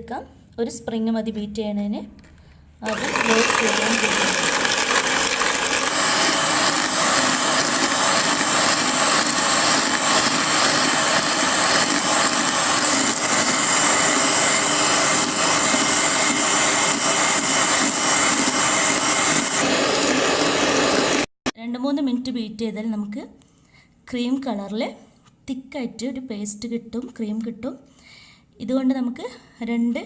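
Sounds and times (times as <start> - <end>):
electric hand beater whirring: 2.8 - 21.3.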